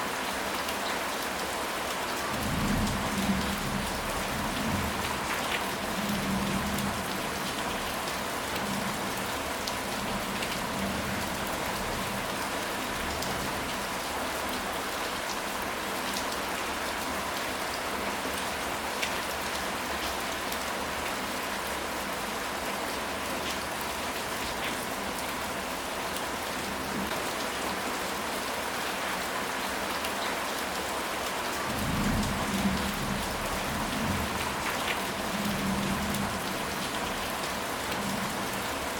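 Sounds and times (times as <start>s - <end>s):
steady rain: 0.0s - 38.9s
low rumble of thunder: 2.4s - 7.1s, 31.7s - 36.6s.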